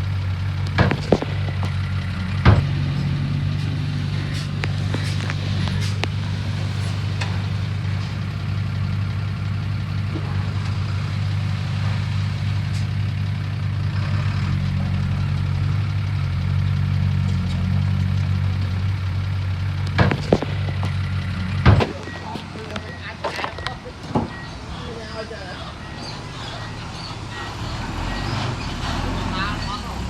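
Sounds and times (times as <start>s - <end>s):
heavy diesel engine running: 0.0s - 30.0s
sharp knocks: 0.7s - 9.1s, 19.9s - 24.7s.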